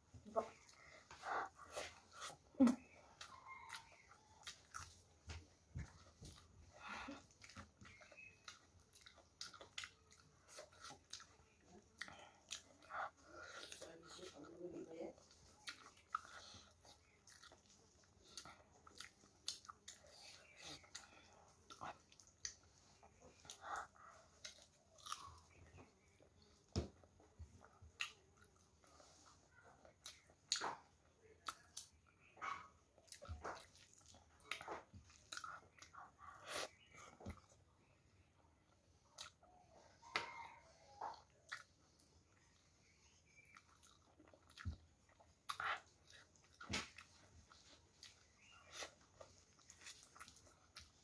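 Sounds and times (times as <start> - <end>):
person chewing: 0.2 - 14.4, 15.2 - 38.0, 38.7 - 51.0.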